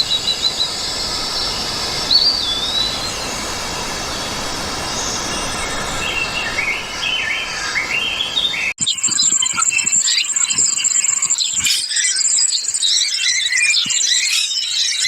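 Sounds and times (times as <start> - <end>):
background hiss: 0.0 - 8.4
forest birds calling: 0.0 - 15.0
high-pitched squeaky chirps: 8.8 - 15.0.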